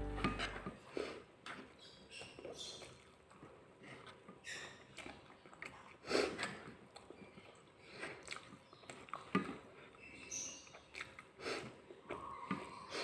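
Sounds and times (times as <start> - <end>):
person chewing noodles: 2.4 - 10.0, 10.7 - 12.1.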